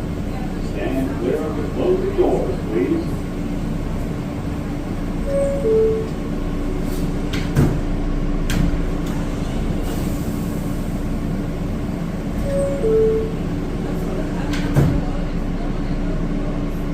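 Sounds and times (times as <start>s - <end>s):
subway car hum: 0.0s - 16.9s
two-tone door chime: 5.2s - 6.2s, 12.4s - 13.4s.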